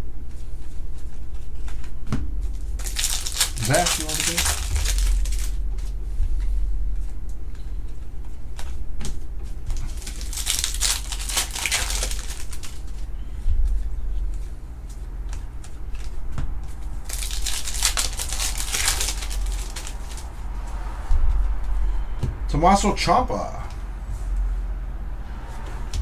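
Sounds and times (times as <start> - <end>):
steady low hum: 0.0 - 26.0
trading cards rustling: 2.6 - 5.9, 9.7 - 20.8.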